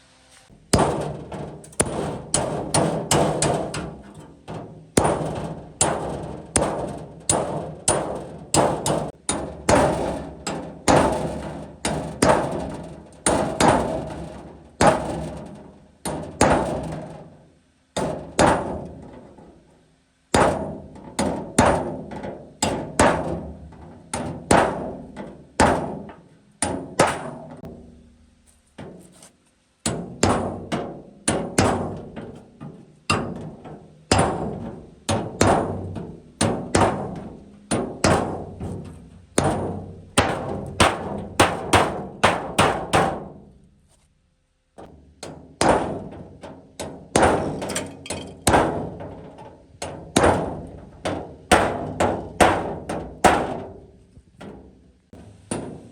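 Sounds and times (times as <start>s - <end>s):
hammer beating on metal: 0.7s - 10.2s, 34.1s - 43.3s.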